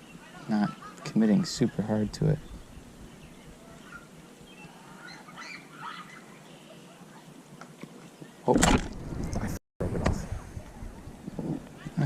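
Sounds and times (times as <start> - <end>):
faint bird calls: 0.0 - 8.5.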